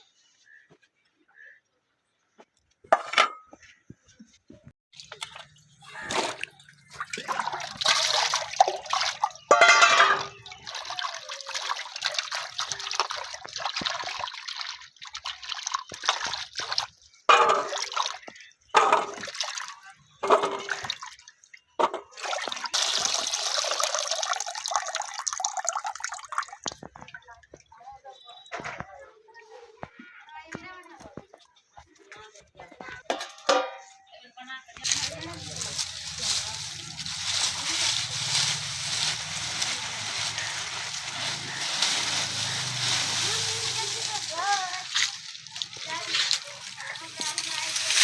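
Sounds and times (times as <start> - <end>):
water splashing and pouring: 4.9 - 27.7, 34.8 - 48.0.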